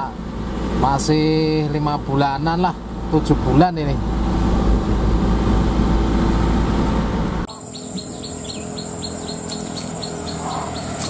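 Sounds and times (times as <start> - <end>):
vehicle road and engine rumble: 0.0 - 11.0
bird chirping rapidly: 7.5 - 11.0
high-pitched insect drone: 7.5 - 11.0.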